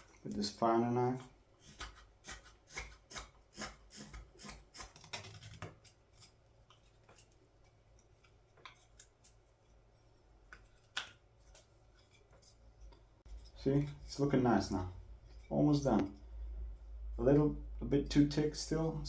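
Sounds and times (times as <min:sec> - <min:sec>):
carving knife shaving wood: 0:01.6 - 0:07.4.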